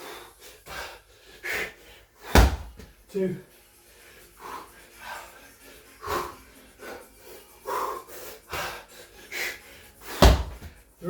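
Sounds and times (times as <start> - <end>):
man breathing hard: 0.0 - 11.0.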